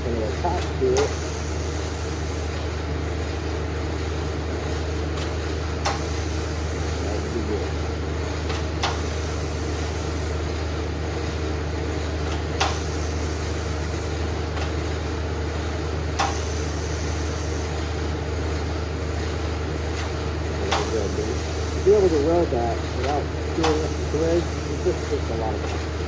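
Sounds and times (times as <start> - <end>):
welding arc hiss: 0.0 - 2.8, 4.1 - 26.0
steady low hum: 0.0 - 26.0
welder sharp click: 0.6 - 2.4, 5.2 - 7.3, 8.5 - 10.3, 12.2 - 14.8, 16.2 - 17.7, 19.9 - 22.0, 23.0 - 25.8.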